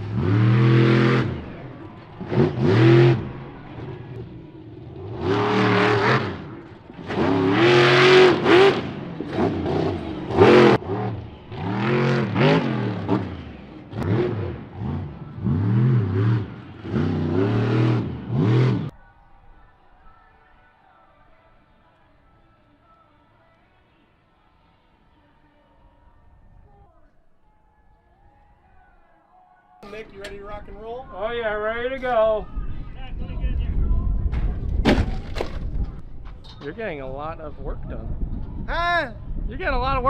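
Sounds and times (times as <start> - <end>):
truck engine revving: 0.0 - 18.9.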